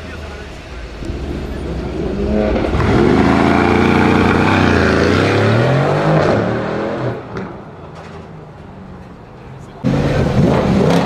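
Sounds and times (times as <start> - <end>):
car engine revving: 0.0 - 7.5, 9.8 - 11.0.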